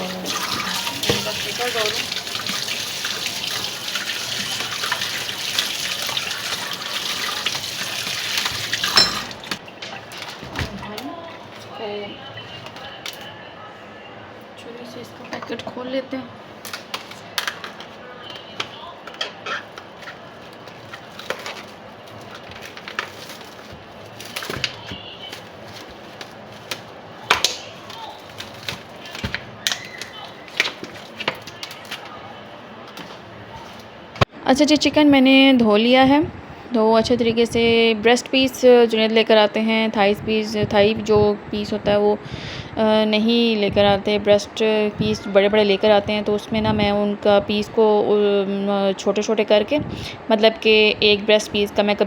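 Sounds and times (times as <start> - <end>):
water splashing on chicken: 0.1 - 10.5
tap running into a sink: 0.3 - 9.6
packet rustling: 16.6 - 34.0
knife cutting plastic packet: 19.6 - 32.2.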